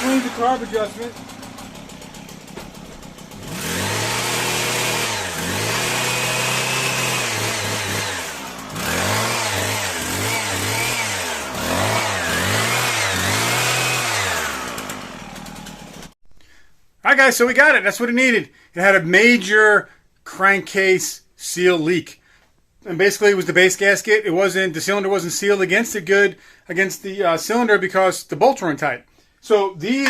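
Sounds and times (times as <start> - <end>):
hedge trimmer engine revving: 0.0 - 16.2.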